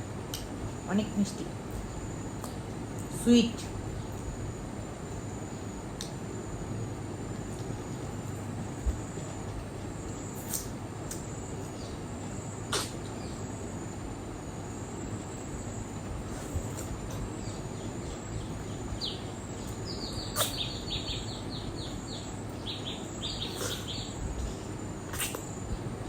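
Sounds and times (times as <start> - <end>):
background hiss: 0.0 - 26.0
bird chirping: 17.3 - 25.5.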